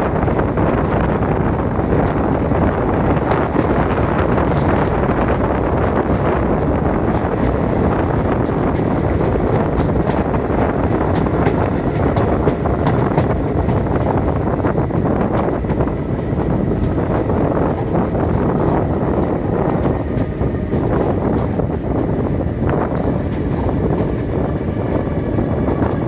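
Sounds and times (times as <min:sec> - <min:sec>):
train wheels rumbling on track: 0:00.0 - 0:26.0
wind on microphone: 0:00.0 - 0:26.0.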